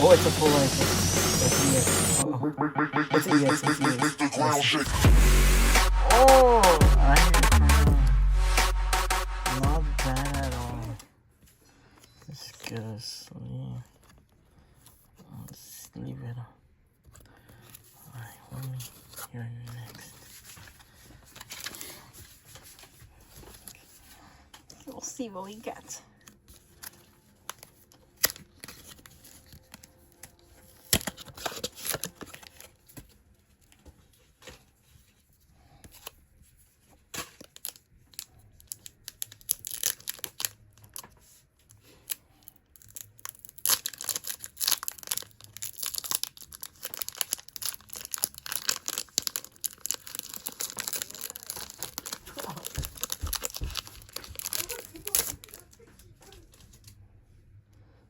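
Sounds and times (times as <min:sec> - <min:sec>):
foil wrapper tearing and crinkling: 0:26.4 - 0:32.8, 0:37.1 - 0:41.1, 0:41.8 - 0:55.8.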